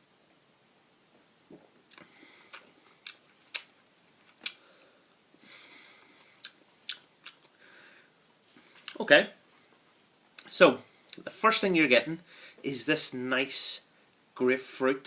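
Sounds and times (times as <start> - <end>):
person sipping: 1.5 - 3.7
wet mouth clicks and lip smacks: 1.5 - 3.7, 4.3 - 4.6, 6.4 - 7.6
soft breaths: 1.6 - 3.3, 4.4 - 6.8, 7.4 - 10.1, 12.2 - 12.7.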